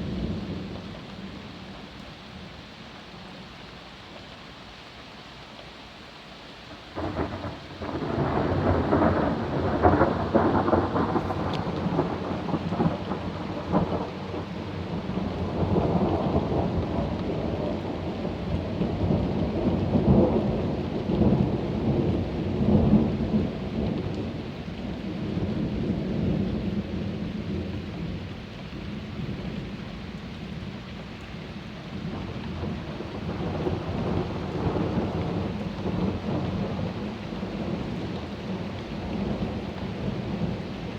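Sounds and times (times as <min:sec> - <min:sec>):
thunder rumbling: 0:07.0 - 0:24.5, 0:31.9 - 0:40.9.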